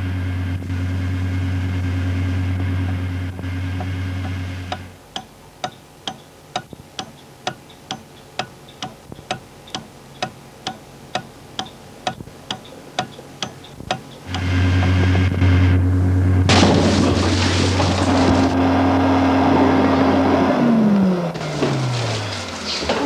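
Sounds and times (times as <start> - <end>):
clock ticking: 4.2 - 15.0
loud low drone: 14.3 - 21.4.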